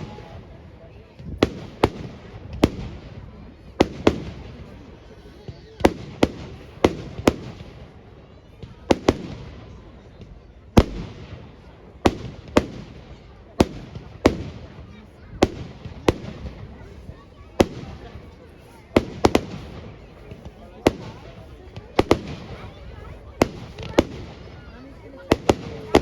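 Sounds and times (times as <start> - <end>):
fireworks bangs with rumbling echo: 0.0 - 26.0.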